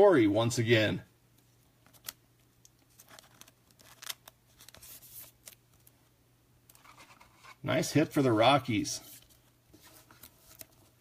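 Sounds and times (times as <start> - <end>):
low steady hum: 0.0 - 11.0
cards clicking and rustling: 1.8 - 5.9.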